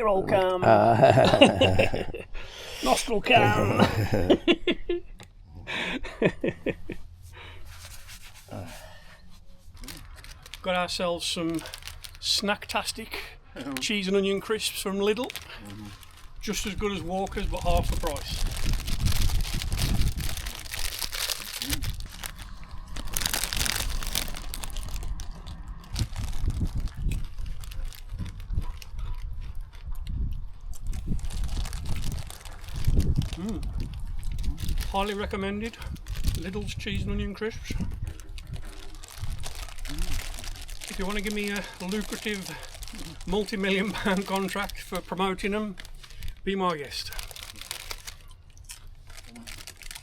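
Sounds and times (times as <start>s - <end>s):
man laughing: 0.3s - 2.4s, 3.0s - 7.0s
crisp packet crinkling: 9.6s - 13.0s, 13.6s - 29.8s, 30.8s - 37.0s, 37.8s - 50.0s
crisps crunching being eaten: 9.7s - 12.8s, 14.6s - 36.7s, 38.0s - 50.0s.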